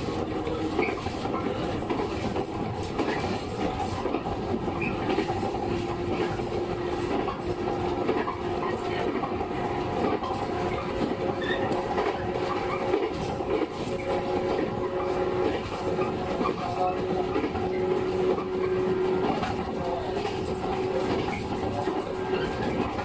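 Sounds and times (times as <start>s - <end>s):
train wheels rolling on rail: 0.0s - 23.0s.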